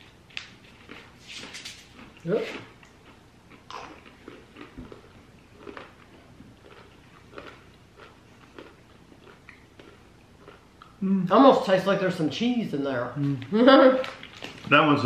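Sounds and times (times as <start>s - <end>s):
nuts crunching while chewed: 0.4s - 11.0s.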